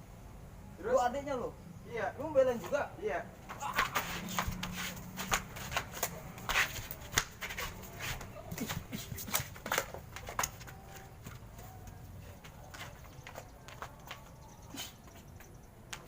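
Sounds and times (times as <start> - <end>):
people scuffling: 3.4 - 16.0
shuffling footsteps: 3.4 - 16.0.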